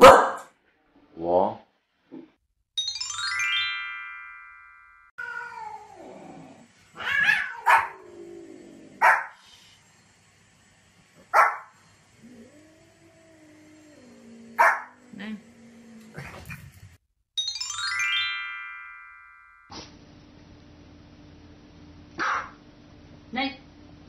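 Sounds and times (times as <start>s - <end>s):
dog barking sharply: 0.0s - 0.5s, 11.3s - 11.7s, 22.2s - 22.6s
chiming jingle: 2.8s - 5.1s, 17.4s - 19.7s
cat meowing: 5.2s - 6.0s, 7.0s - 8.0s.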